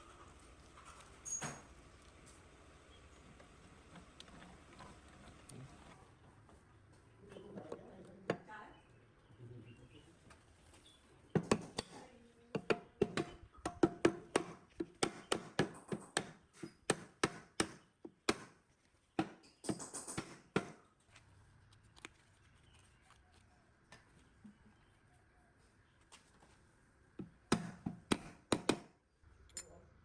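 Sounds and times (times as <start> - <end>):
sharp taps and knocks: 19.2 - 20.8.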